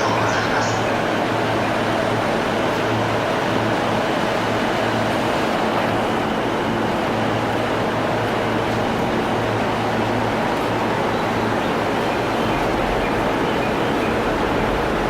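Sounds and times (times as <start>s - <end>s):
commuter train running: 0.0s - 15.0s.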